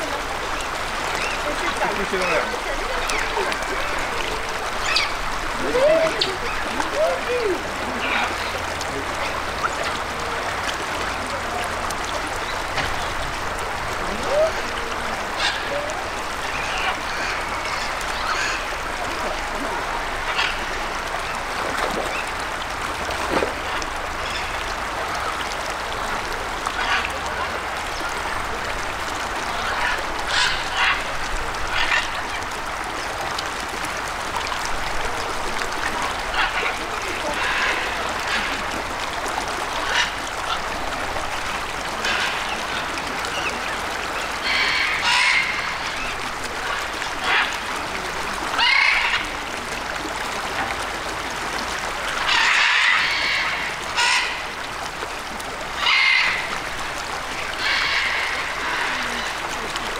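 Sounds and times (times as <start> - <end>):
birds squawking and honking: 0.0 - 6.9, 44.4 - 47.6, 48.6 - 49.4, 52.2 - 54.7, 55.8 - 56.6, 57.5 - 59.4.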